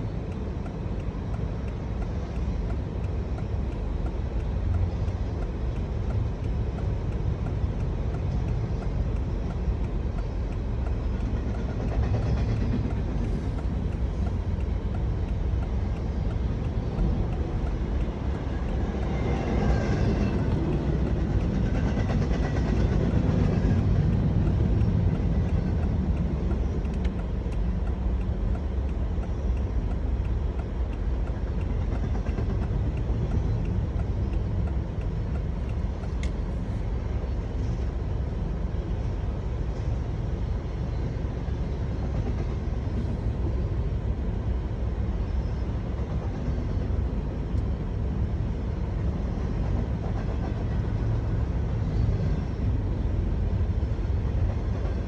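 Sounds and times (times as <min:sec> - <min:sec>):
faint clicks: 0:23.4 - 0:36.9.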